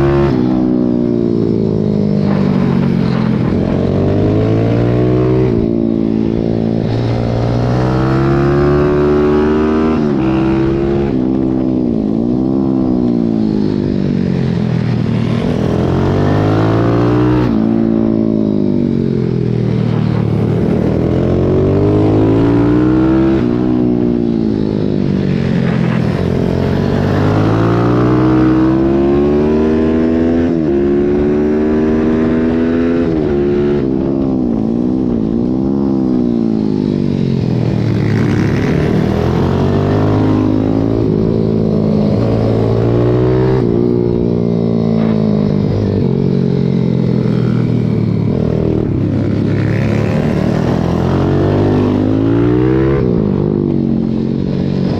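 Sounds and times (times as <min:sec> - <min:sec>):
motorbike engine revving: 0:35.0 - 0:54.9.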